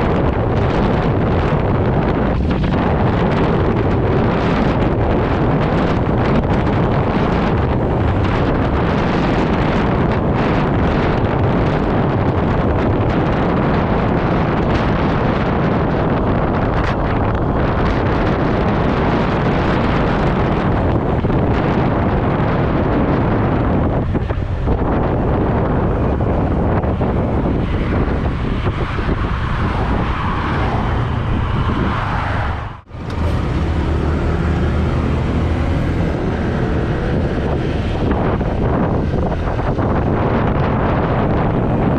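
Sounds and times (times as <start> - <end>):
road noise: 0.0 - 41.9
wind buffeting microphone: 0.0 - 41.9
scooter engine running: 32.9 - 38.6.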